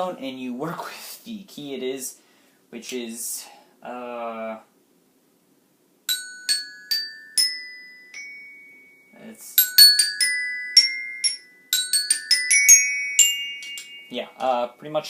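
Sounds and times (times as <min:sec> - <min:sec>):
glockenspiel notes: 0:06.1 - 0:14.8.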